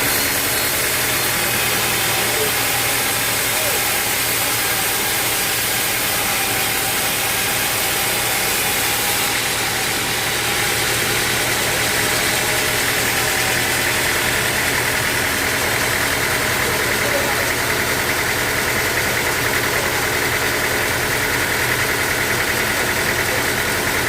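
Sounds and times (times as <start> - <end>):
sawmill machinery running: 0.0 - 24.0.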